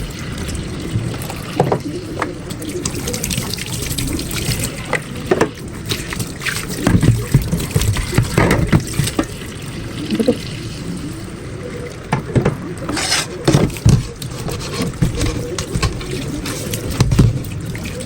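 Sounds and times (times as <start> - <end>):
water running and trickling: 0.0 - 18.0
knocks and clatter of objects: 0.9 - 2.3, 4.9 - 5.6, 6.8 - 9.4, 12.1 - 17.6.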